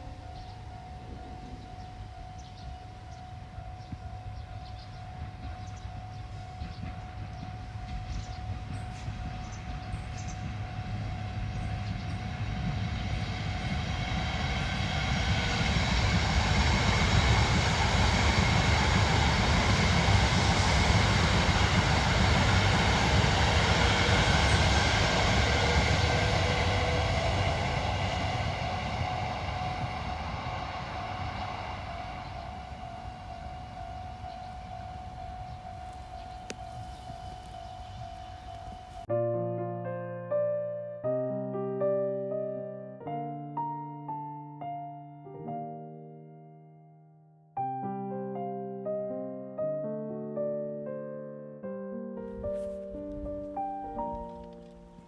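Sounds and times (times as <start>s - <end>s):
train passing: 0.0s - 39.1s, 52.2s - 55.0s.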